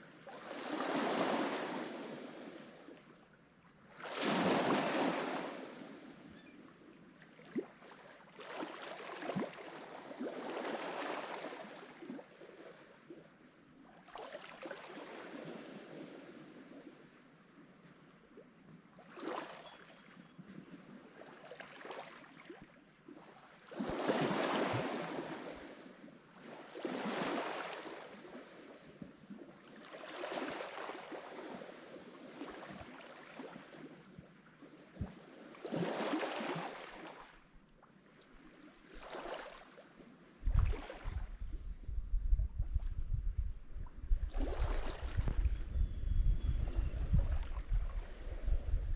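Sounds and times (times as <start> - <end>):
waves breaking on shore: 0.2 - 3.0, 4.0 - 6.2, 7.5 - 12.2, 23.6 - 34.0, 35.2 - 37.4, 38.3 - 41.8, 44.3 - 45.5.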